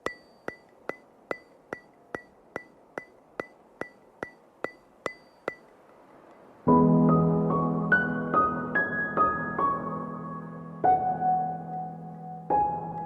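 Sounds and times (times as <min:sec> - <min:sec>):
ticking clicks with ringing tone: 0:00.0 - 0:06.5.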